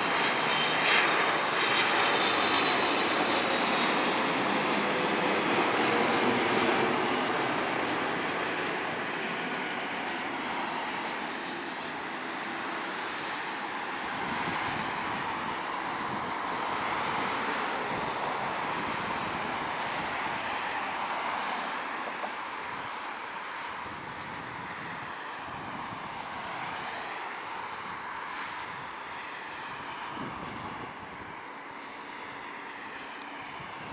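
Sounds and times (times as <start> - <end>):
falling jet whine: 0.0 - 22.5
jet engines rushing: 0.0 - 33.9.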